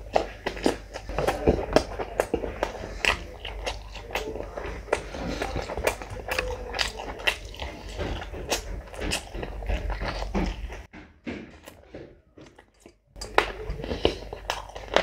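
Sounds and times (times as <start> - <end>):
man chewing with mouth smacks: 0.0 - 10.9, 11.6 - 15.0.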